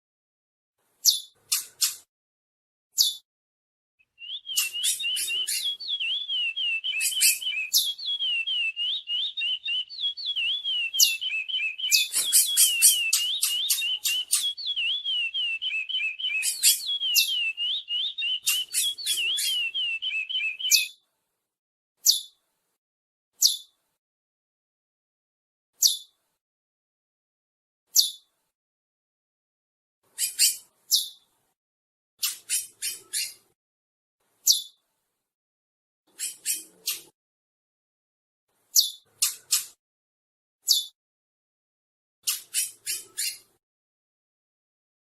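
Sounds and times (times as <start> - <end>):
sharp high bird chirps: 1.0 - 2.1, 3.0 - 3.2, 4.0 - 21.0, 22.0 - 22.4, 28.0 - 28.2, 30.2 - 31.2, 32.2 - 33.4, 34.4 - 34.8, 36.1 - 37.2, 38.8 - 39.8, 40.7 - 41.0, 42.2 - 43.5
finch warbling song: 4.2 - 20.9.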